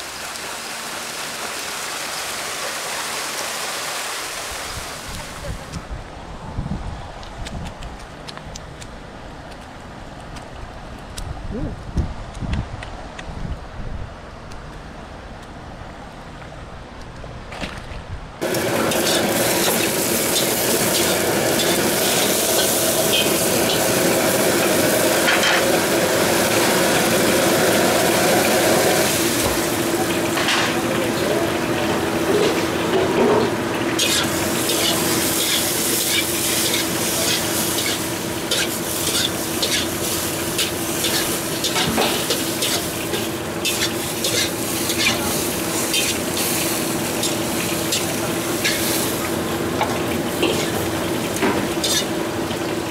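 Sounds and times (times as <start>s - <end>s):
shrimp sizzling in oil: 18.4s - 30.4s, 34.0s - 52.2s
spatula scraping a wok: 34.0s - 46.6s, 51.8s - 52.1s.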